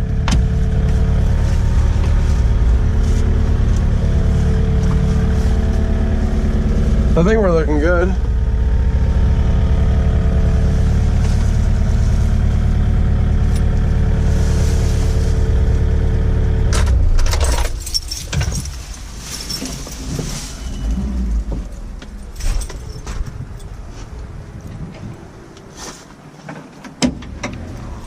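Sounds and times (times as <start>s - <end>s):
excavator diesel engine running: 0.0s - 19.2s.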